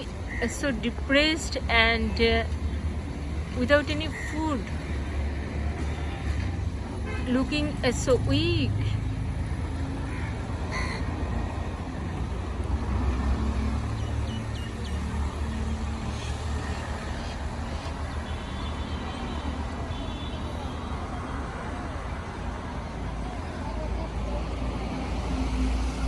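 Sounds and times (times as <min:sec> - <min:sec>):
birds calling: 0:00.0 - 0:05.3, 0:06.2 - 0:12.3, 0:13.1 - 0:19.4
low rumble of traffic: 0:00.0 - 0:26.0.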